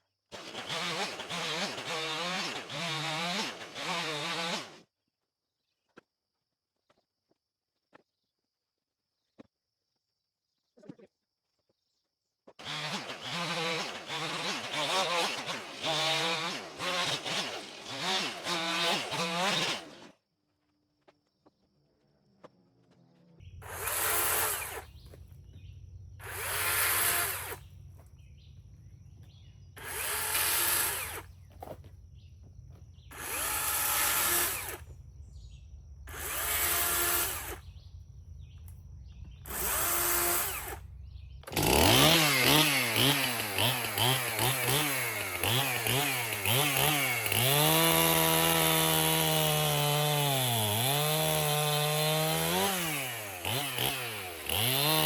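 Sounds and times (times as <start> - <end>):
chainsaw cutting wood: 0.3 - 4.9, 12.6 - 20.2, 23.6 - 37.8, 39.2 - 55.0.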